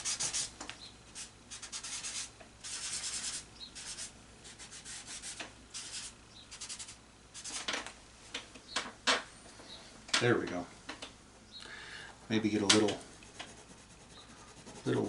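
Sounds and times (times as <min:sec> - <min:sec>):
paper towel rubbing paper: 0:13.3 - 0:15.0.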